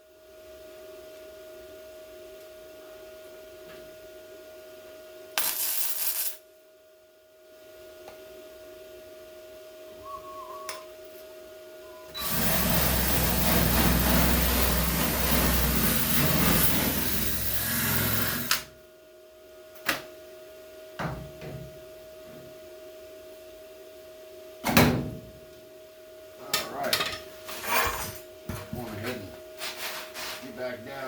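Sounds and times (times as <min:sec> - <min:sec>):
welder crackling hiss: 0:05.4 - 0:06.4.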